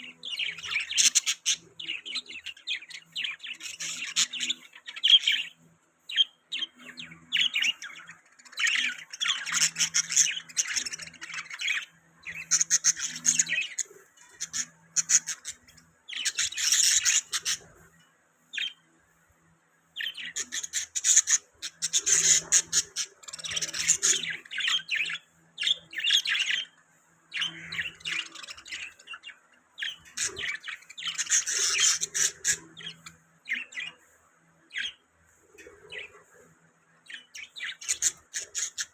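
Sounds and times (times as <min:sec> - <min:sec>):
budgerigars chirping and chattering: 0:00.0 - 0:19.0, 0:20.0 - 0:38.9
bird squawks: 0:20.0 - 0:26.7, 0:27.4 - 0:34.0.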